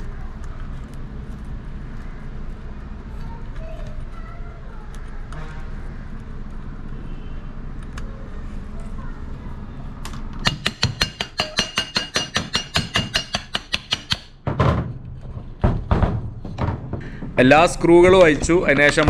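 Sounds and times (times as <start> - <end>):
steady background hum: 0.0 - 19.0
heavy knock: 14.0 - 19.0.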